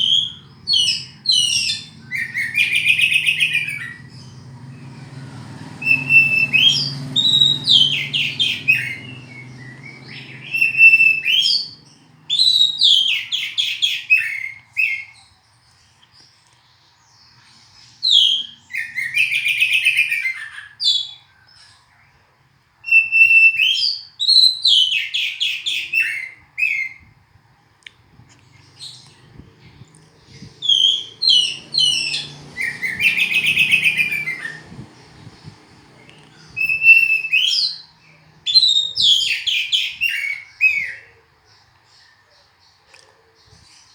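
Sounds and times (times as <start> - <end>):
bird singing whistles and trills: 0.0 - 15.3, 17.8 - 21.8, 22.8 - 27.1, 28.7 - 41.2
faint low hum: 27.0 - 39.2.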